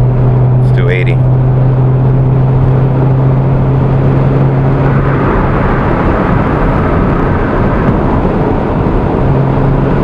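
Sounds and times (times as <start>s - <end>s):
low exhaust hum: 0.0s - 10.0s
tyre and wind noise: 0.0s - 10.0s.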